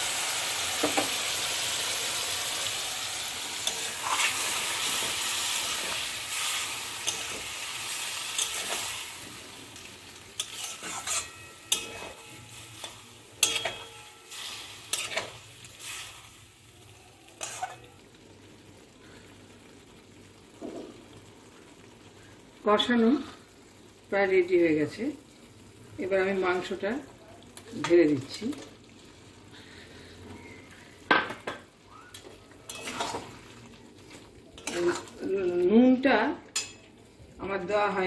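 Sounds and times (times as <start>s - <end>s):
food sizzling in oil: 0.0s - 38.0s
spatula scraping and knocking pan: 10.4s - 14.1s, 32.7s - 33.3s.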